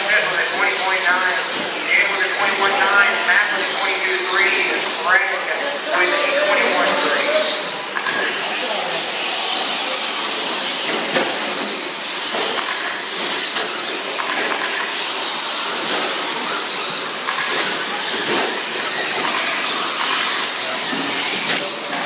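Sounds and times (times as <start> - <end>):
toy truck motors whining: 0.0 - 22.0
tyres hissing: 0.4 - 7.9.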